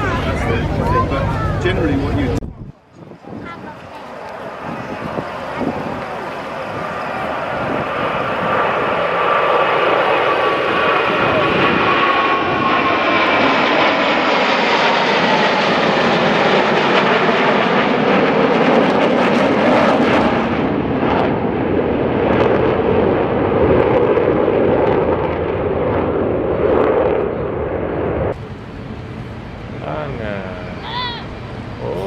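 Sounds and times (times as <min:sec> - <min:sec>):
aircraft engine flying past: 0:00.0 - 0:32.0.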